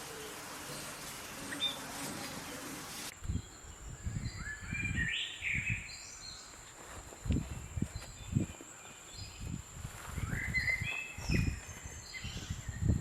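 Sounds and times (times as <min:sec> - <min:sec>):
even hiss: 0:00.0 - 0:03.2.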